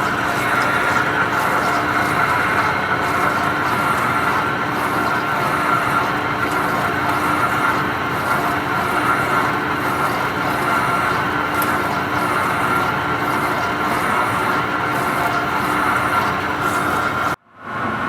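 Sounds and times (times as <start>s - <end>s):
lathe running with high whine: 0.0s - 17.4s.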